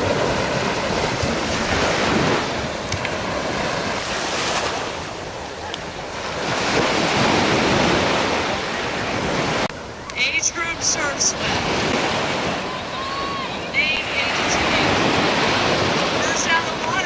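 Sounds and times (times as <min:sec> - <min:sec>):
ocean surf washing: 0:00.0 - 0:17.0
wind rumbling on microphone: 0:00.0 - 0:17.0.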